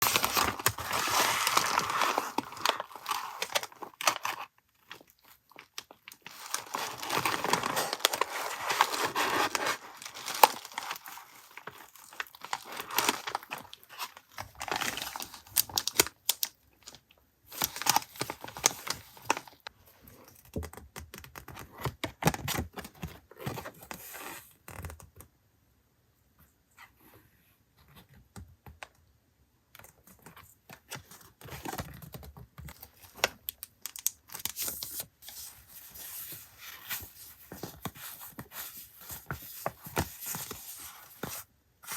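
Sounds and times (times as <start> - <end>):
packaging tearing and crinkling: 0.0 - 16.6, 17.5 - 19.6.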